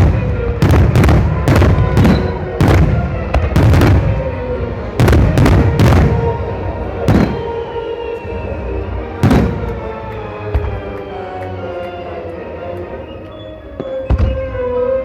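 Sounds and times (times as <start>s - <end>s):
fireworks booming: 0.0s - 8.3s, 9.1s - 11.0s, 13.7s - 14.8s
music: 0.0s - 15.0s.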